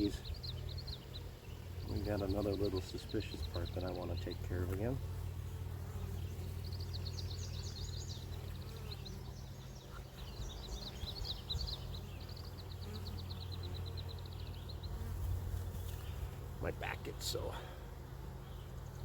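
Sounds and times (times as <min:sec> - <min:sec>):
songbird trilling: 0:00.0 - 0:04.9, 0:06.2 - 0:15.1
honeybees humming: 0:00.0 - 0:19.0.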